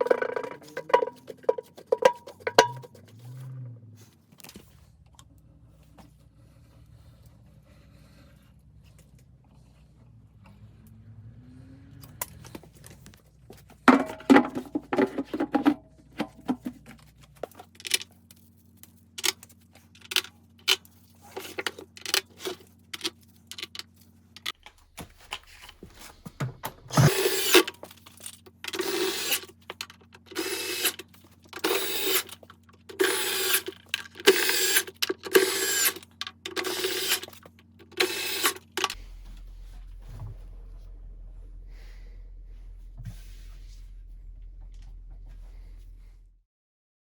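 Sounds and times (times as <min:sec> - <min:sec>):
tools and parts clicking: 0:00.0 - 0:03.0, 0:19.2 - 0:39.0
power drill bursts: 0:24.8 - 0:27.8, 0:28.8 - 0:29.5, 0:30.3 - 0:31.0, 0:31.6 - 0:39.0.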